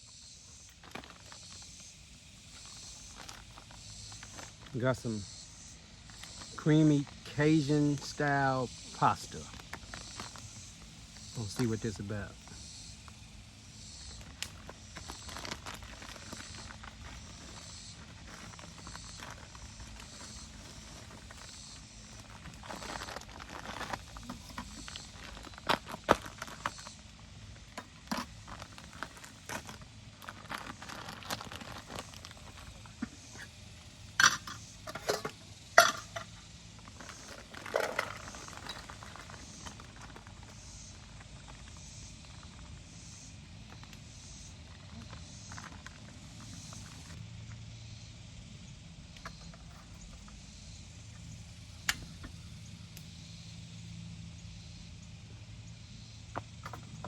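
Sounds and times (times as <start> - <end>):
insects buzzing: 0.0 - 57.0
handling clicks and rustles: 6.0 - 47.6
pots and utensils clinking: 34.2 - 36.3.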